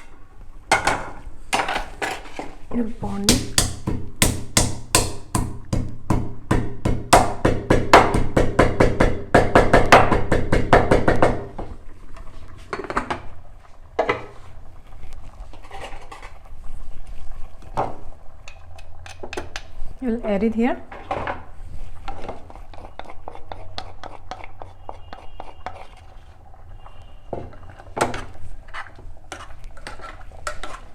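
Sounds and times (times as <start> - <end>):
pestle pounding in a mortar: 3.2 - 11.6.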